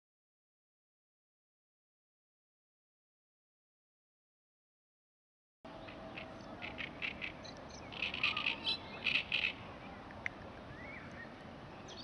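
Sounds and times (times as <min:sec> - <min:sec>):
bird chirping: 0:05.7 - 0:09.7, 0:10.7 - 0:12.0
steady outdoor hiss: 0:05.7 - 0:12.0.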